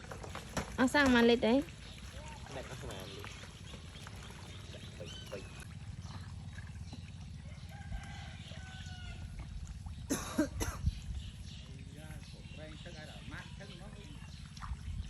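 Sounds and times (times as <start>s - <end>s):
rooster crowing: 7.5s - 9.4s.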